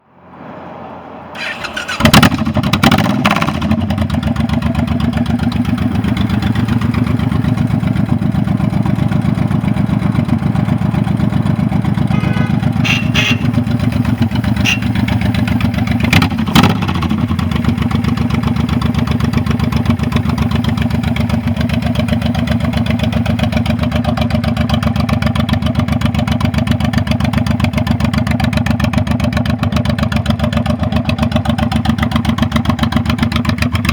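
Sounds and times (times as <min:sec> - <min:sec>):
motorcycle engine starting: 0:01.4 - 0:33.9
motorcycle engine idling: 0:03.5 - 0:33.9
motorcycle throttle blips: 0:05.2 - 0:24.7.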